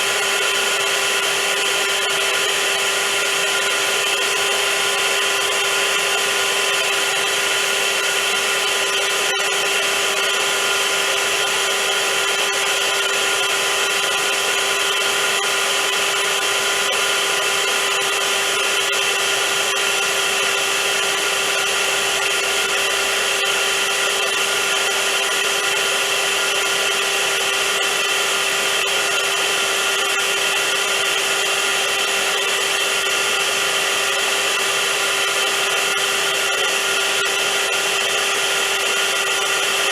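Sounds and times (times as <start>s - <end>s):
vacuum cleaner motor running: 0.0s - 39.9s.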